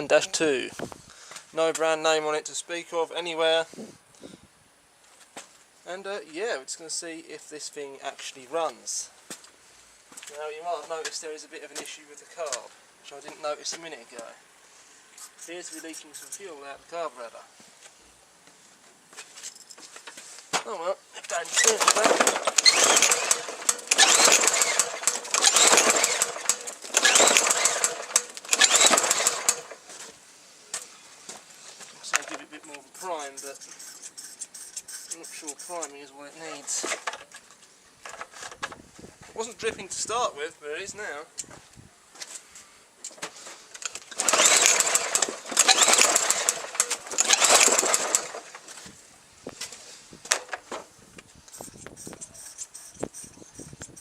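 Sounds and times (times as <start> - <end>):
lawn mower recoil pull cranking: 21.3 - 30.0, 32.2 - 35.9, 43.7 - 48.9, 51.4 - 54.0.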